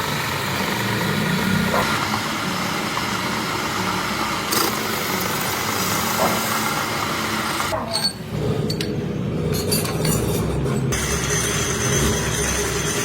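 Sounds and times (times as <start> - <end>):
machine motor humming: 0.0 - 7.7.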